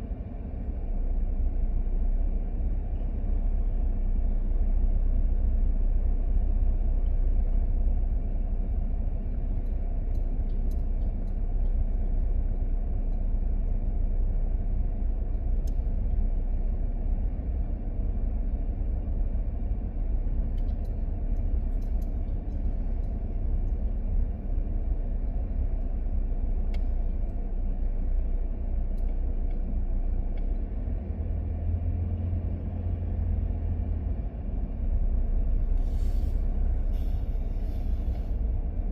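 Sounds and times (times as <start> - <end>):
moving vehicle rumble: 0.0 - 38.9
faint ticks: 9.6 - 12.1, 20.5 - 23.9.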